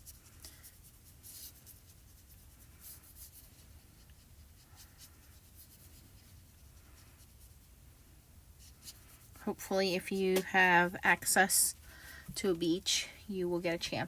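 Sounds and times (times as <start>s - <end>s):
marker scratching on card: 0.0s - 7.7s, 8.6s - 9.4s
low steady hum: 0.0s - 14.0s.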